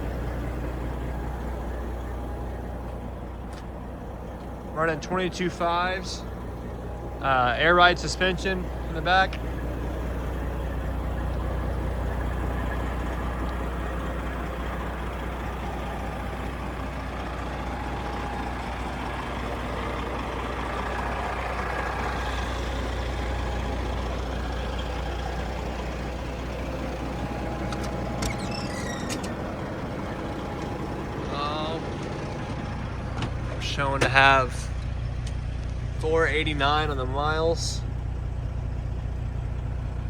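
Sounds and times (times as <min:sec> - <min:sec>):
diesel truck engine idling: 0:00.0 - 0:40.0.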